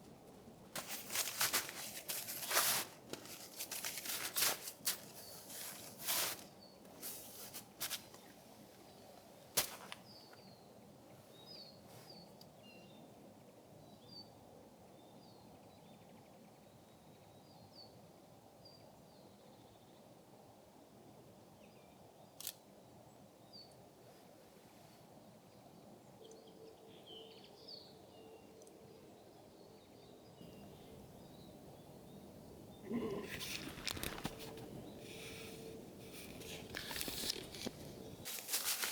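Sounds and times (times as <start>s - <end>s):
rustling and crunching: 0.7s - 8.3s, 9.5s - 10.2s, 30.4s - 38.9s
small birds chirping: 30.4s - 38.9s.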